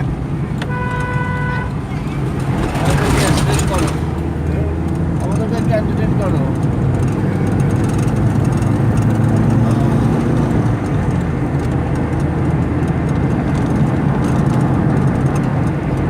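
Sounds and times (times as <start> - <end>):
car engine and tyre hum: 0.0 - 16.0.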